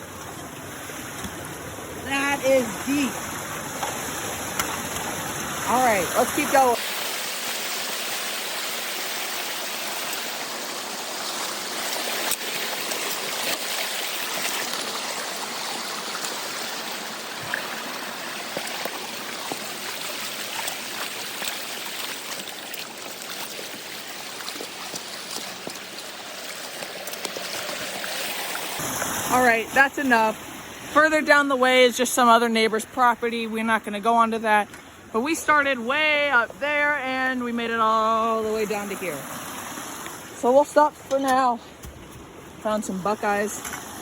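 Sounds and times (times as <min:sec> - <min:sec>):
creek water running: 0:00.0 - 0:44.0.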